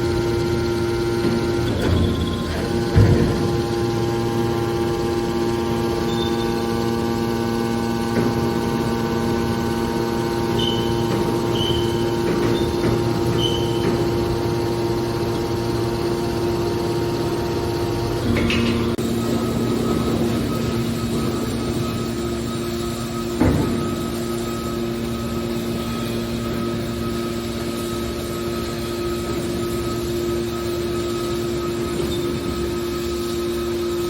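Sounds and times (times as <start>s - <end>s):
hydraulic power unit humming: 0.0s - 34.0s
faint squeaks: 10.5s - 14.1s.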